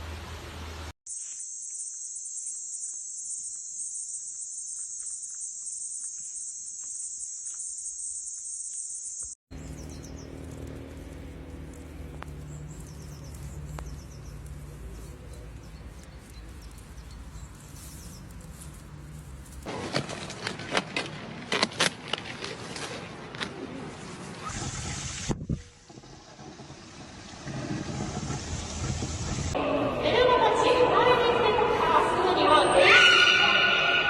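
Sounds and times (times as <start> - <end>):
insect chorus droning: 1.1 - 15.0.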